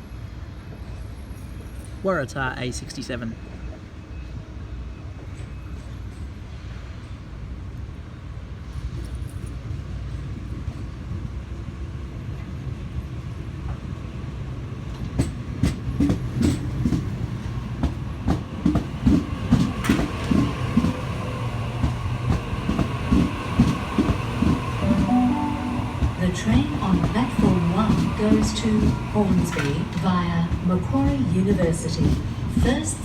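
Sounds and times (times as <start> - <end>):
electric train rumbling: 0.0 - 33.0
train wheels clattering over rail joints: 14.9 - 21.0, 26.4 - 33.0.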